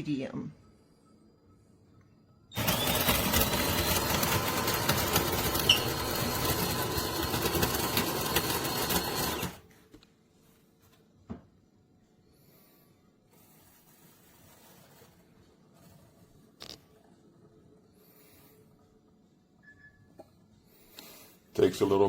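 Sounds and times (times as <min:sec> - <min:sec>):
coffee grinder grinding beans: 0:02.5 - 0:09.7.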